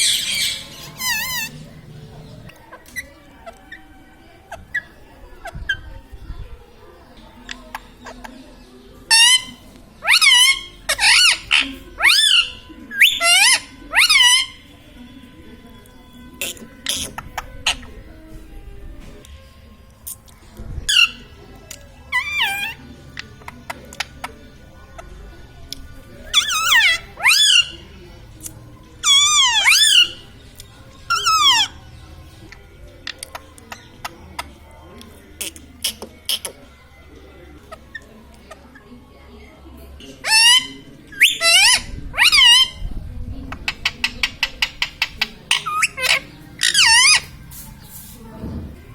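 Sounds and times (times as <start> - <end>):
parakeet loud high calls: 0.0 - 1.6, 9.1 - 14.6, 22.1 - 22.8, 26.3 - 27.8, 29.0 - 30.2, 31.1 - 31.7, 40.2 - 42.8, 44.6 - 47.3.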